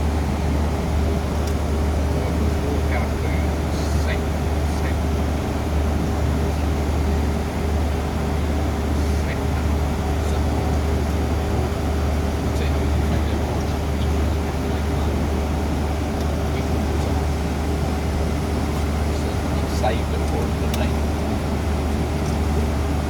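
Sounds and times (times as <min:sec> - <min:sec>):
turboprop engines droning: 0:00.0 - 0:23.0.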